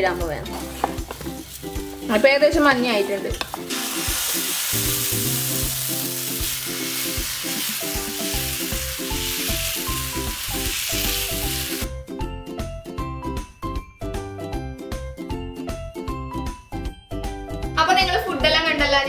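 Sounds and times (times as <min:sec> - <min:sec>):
light background music with beat: 0:00.0 - 0:19.0
batter sizzling on hot pan: 0:03.4 - 0:11.9.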